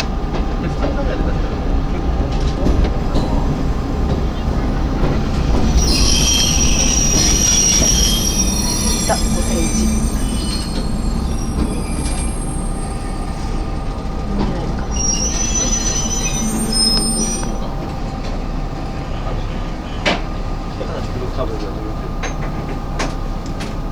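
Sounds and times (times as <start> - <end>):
railcar rumble: 0.0 - 23.9
metal squeals from running gear: 3.1 - 13.6, 14.8 - 18.1.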